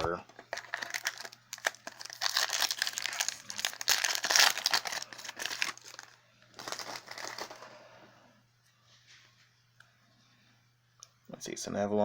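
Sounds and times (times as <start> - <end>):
crinkling foil packaging and cards: 0.0 - 7.8.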